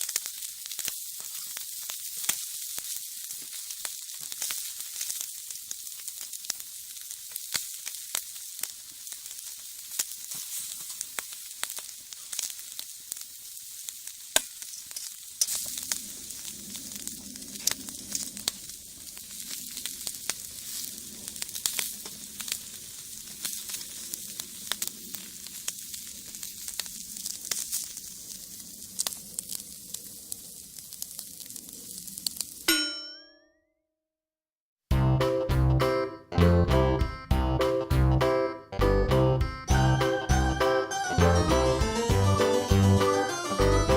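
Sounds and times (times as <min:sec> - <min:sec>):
fish sizzling on a grill: 0:00.0 - 0:32.7
wood fire crackles and pops: 0:00.0 - 0:32.7.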